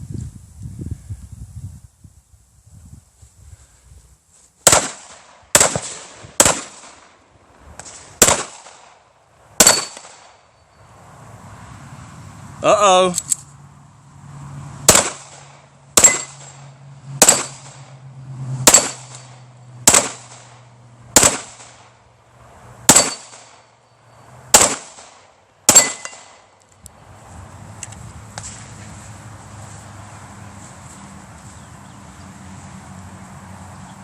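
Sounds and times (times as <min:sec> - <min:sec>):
gunshots: 0:04.6 - 0:07.2, 0:07.8 - 0:09.0, 0:09.6 - 0:10.4, 0:14.9 - 0:17.9, 0:18.6 - 0:21.9, 0:22.9 - 0:23.7, 0:24.5 - 0:26.4.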